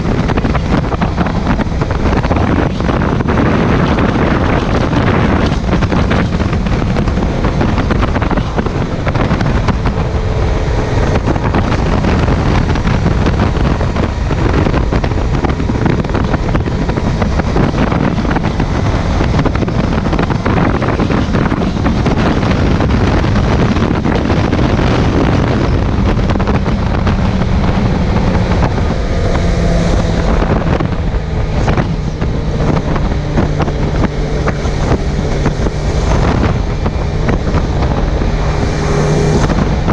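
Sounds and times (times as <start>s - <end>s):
motorcycle engine running: 0.0s - 39.9s
wind buffeting microphone: 0.0s - 39.9s.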